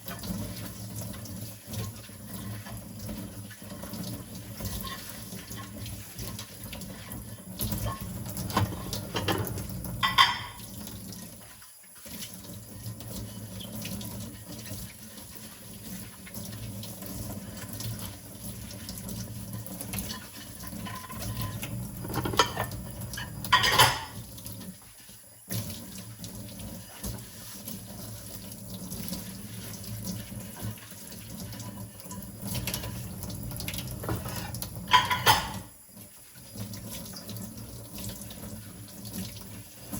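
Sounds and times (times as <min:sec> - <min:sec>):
kitchen tap running into sink: 0:00.0 - 0:39.9
dishes clinking: 0:07.8 - 0:10.7, 0:20.8 - 0:24.2, 0:34.0 - 0:35.7.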